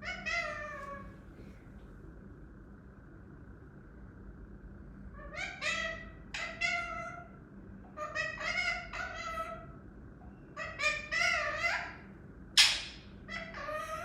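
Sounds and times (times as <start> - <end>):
parrot making meow-like calls: 0.0 - 1.1, 5.2 - 7.4, 8.0 - 9.8, 10.6 - 12.0, 13.3 - 14.0.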